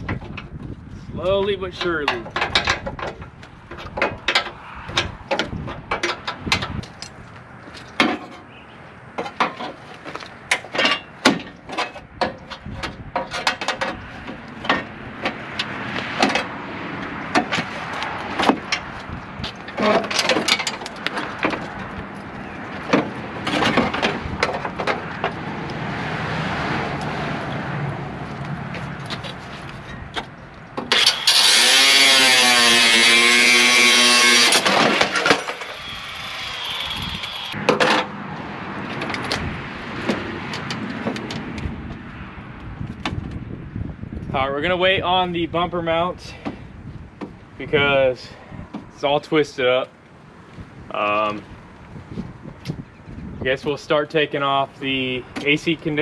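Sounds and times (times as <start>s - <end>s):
metal tools clanking: 10.5s - 16.5s, 19.5s - 25.4s, 34.4s - 38.1s
power tool running: 30.9s - 37.6s.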